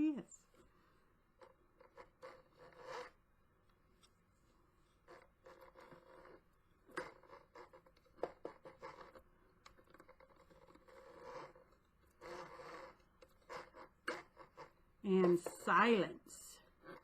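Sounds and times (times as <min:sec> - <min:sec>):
scratchy scraping rustles: 0:01.4 - 0:03.2, 0:04.8 - 0:17.0.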